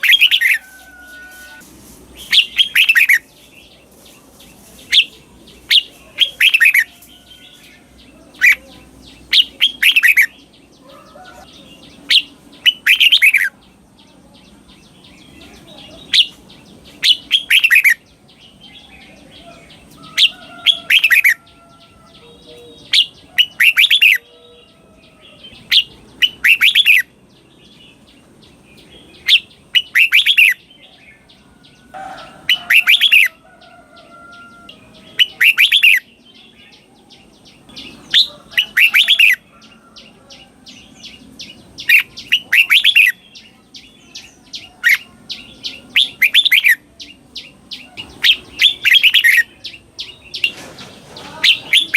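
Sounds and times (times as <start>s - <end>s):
bird singing whistled phrases: 17.0s - 18.0s, 25.7s - 27.1s, 29.2s - 30.6s, 35.2s - 36.1s, 41.8s - 43.4s.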